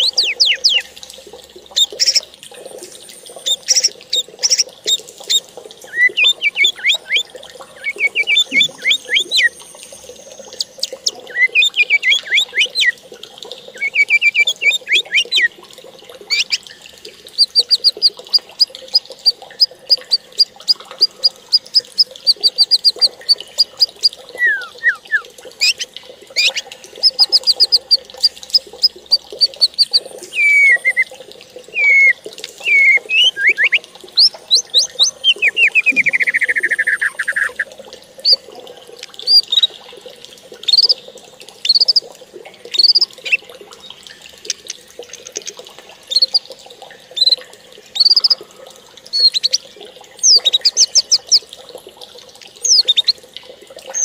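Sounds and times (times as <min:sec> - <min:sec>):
birds singing and calling: 0:00.0 - 0:01.0, 0:01.7 - 0:02.3, 0:03.2 - 0:13.0, 0:13.7 - 0:15.5, 0:16.3 - 0:16.8, 0:17.4 - 0:31.1, 0:31.7 - 0:38.4, 0:39.0 - 0:39.8, 0:40.6 - 0:41.0, 0:41.6 - 0:42.0, 0:42.7 - 0:46.4, 0:47.2 - 0:47.4, 0:48.0 - 0:48.4, 0:49.1 - 0:49.6, 0:50.2 - 0:51.5, 0:52.6 - 0:53.2.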